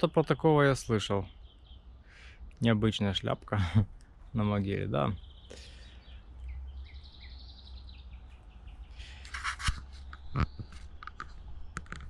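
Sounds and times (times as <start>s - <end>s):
songbird trilling: 0.0s - 2.3s, 4.3s - 9.2s
clicks and rustles: 9.0s - 12.0s.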